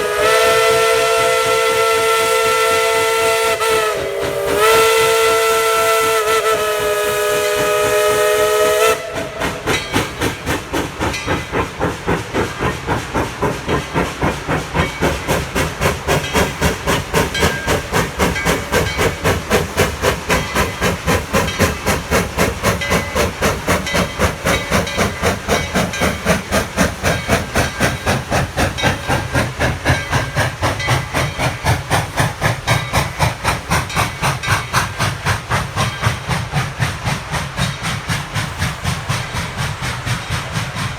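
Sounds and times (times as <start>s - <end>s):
steam locomotive whistle: 0.0s - 9.8s
locomotive exhaust chuffing: 0.0s - 40.9s.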